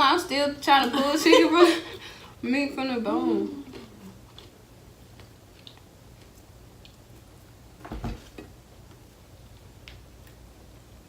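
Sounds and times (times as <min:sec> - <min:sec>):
chewing clicks: 0:03.7 - 0:07.0.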